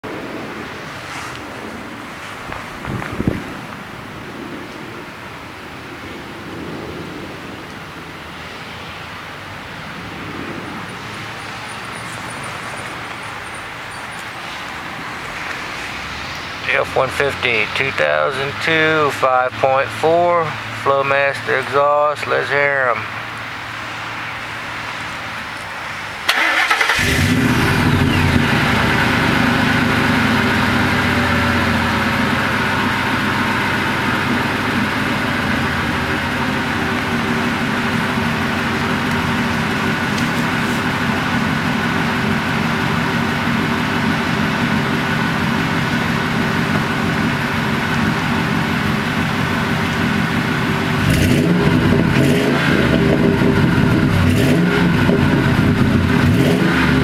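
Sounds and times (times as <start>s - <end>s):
truck engine starting: 10.2s - 23.0s, 25.9s - 57.0s
engine idling through exhaust: 10.7s - 57.0s.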